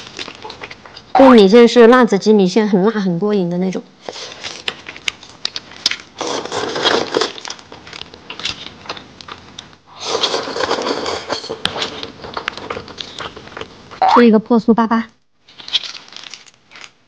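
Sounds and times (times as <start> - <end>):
slurping noodles: 9.9 - 11.9.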